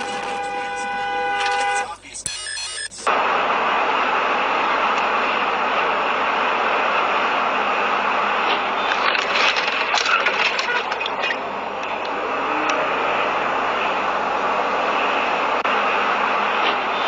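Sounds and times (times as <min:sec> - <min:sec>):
vehicle road and engine noise: 0:00.0 - 0:02.3, 0:03.0 - 0:17.0
sharp clicks and rattles: 0:08.4 - 0:12.2.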